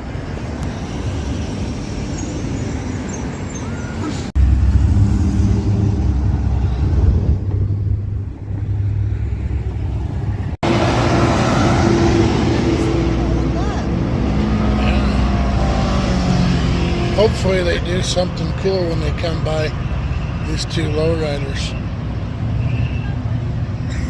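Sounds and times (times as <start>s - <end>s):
cars driving past: 0.0s - 24.0s
deep car engine rumble: 4.1s - 19.9s.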